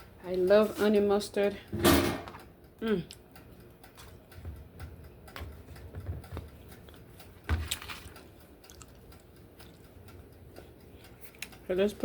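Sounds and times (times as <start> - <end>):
clicks and knocks of kitchen items: 1.7 - 2.4, 5.4 - 6.5.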